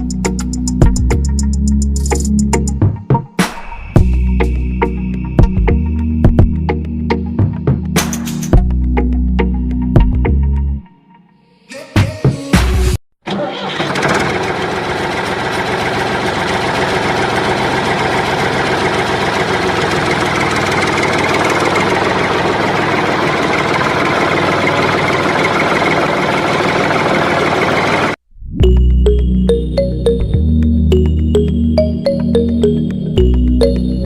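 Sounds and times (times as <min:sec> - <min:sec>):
engine starting and running: 0:13.2 - 0:30.2.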